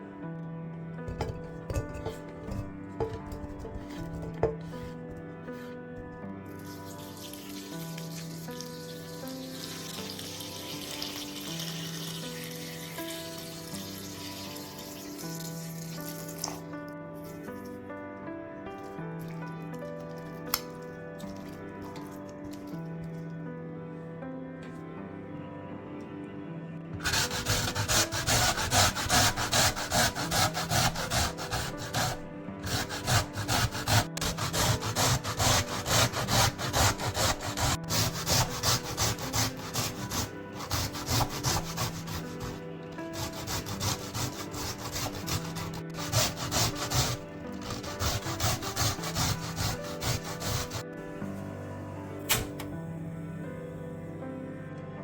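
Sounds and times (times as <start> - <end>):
soft background music: 0.0 - 55.0
grater rasping strokes: 1.1 - 5.2, 27.0 - 50.8.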